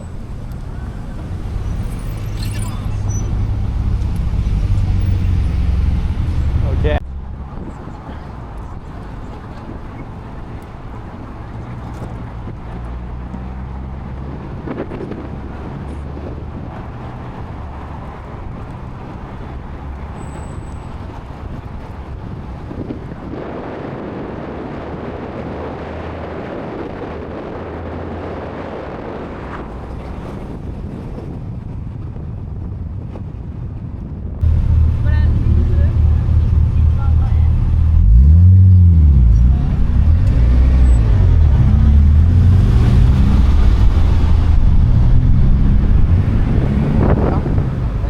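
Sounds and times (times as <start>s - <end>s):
car engine running: 0.0s - 22.9s, 34.4s - 48.0s
tyre and road noise: 0.0s - 48.0s.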